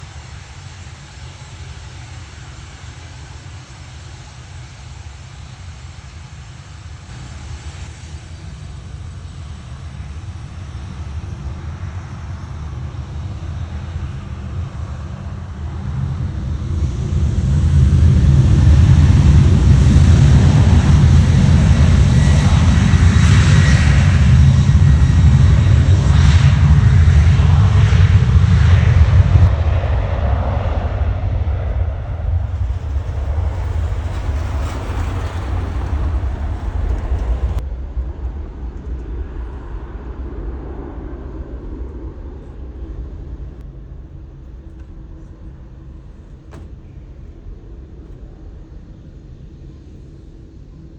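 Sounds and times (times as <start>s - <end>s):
jet engines rumbling: 0.0s - 50.9s
airframe rattling: 32.4s - 37.6s.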